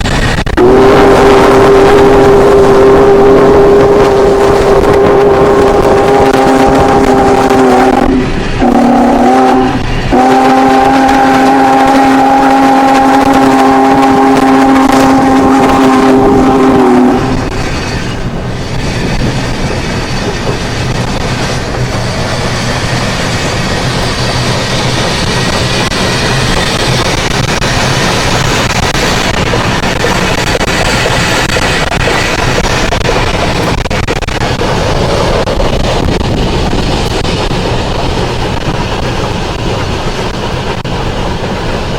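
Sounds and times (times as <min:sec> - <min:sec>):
train rumbling and rattling: 0:00.0 - 0:41.9
locomotive whistle blasts: 0:00.5 - 0:18.0.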